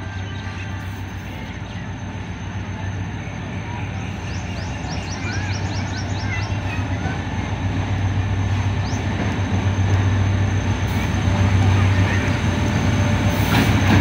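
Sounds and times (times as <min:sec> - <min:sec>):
locomotive engine drone: 0:00.0 - 0:14.0.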